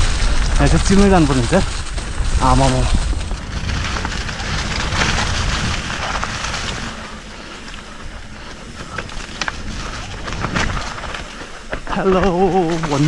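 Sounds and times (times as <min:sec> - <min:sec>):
bike clicks and rattles: 0:00.0 - 0:13.0
bike tyres rolling on dirt: 0:00.0 - 0:13.0
wind rushing over microphone: 0:00.0 - 0:13.0.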